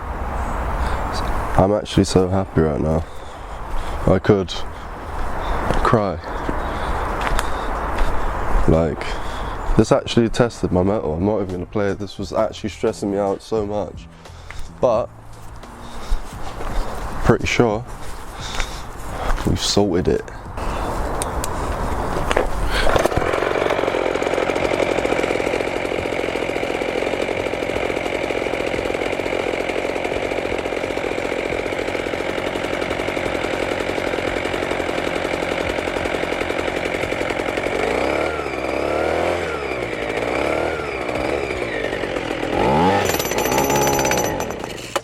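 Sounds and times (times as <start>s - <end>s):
two-stroke engine running: 4.7s - 9.7s, 13.8s - 17.2s, 20.7s - 45.0s.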